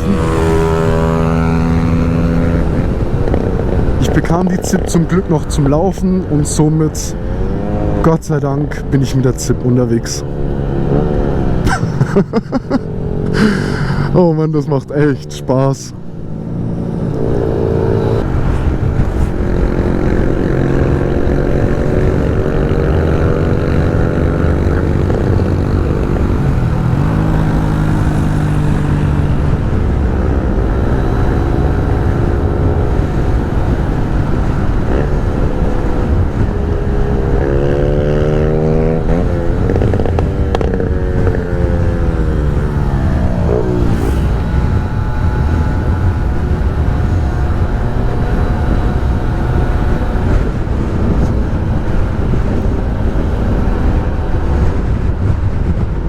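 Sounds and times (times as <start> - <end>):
wind rumble on microphone: 0.0 - 8.0, 15.9 - 56.0
scooter engine running: 16.2 - 56.0.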